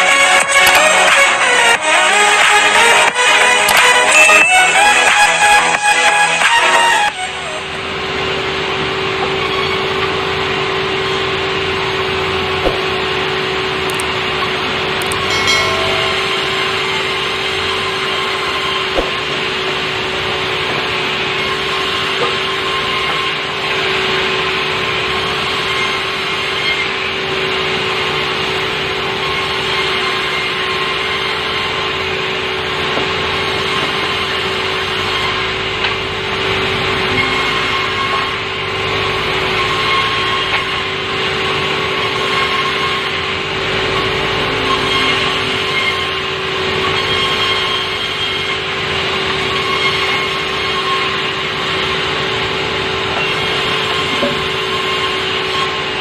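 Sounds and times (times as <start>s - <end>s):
sawmill saw cutting timber: 0.0s - 56.0s.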